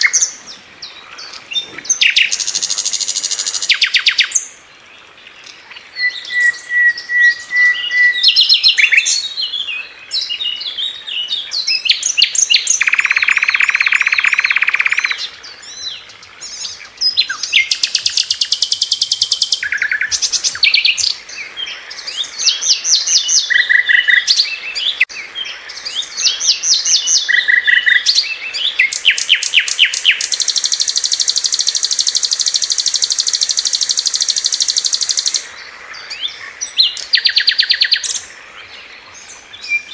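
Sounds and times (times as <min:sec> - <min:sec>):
flycatcher singing: 0:11.6 - 0:15.8, 0:16.5 - 0:25.2, 0:25.8 - 0:35.5, 0:36.1 - 0:38.3.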